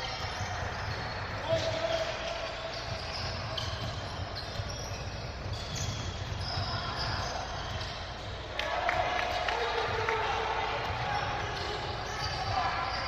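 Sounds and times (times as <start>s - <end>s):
basketball bouncing on gym floor: 0.0s - 8.5s
background din of hall: 0.0s - 13.0s.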